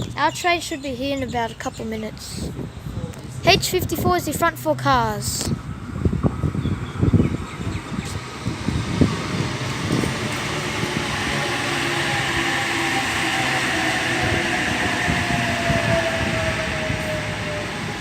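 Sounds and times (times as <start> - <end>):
train wheels rumbling on rail: 5.5 - 18.0
thin motor whine: 6.5 - 18.0.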